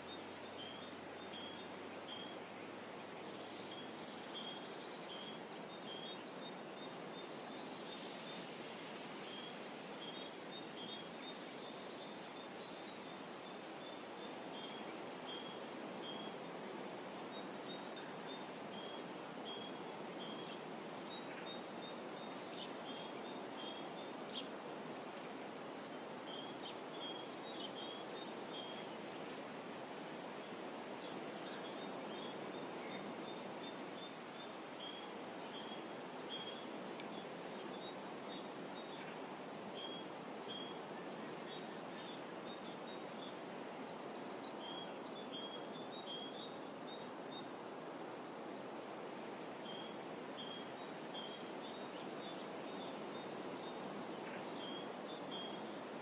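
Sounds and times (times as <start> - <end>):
small birds chirping: 14.1 - 47.5.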